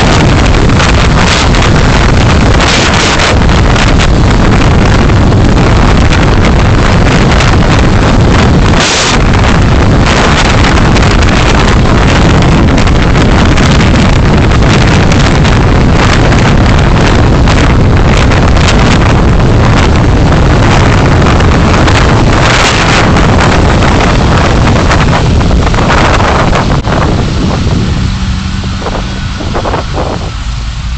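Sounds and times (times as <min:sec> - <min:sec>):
vehicle road noise: 0:00.0 - 0:30.9
wind buffeting microphone: 0:00.0 - 0:30.9.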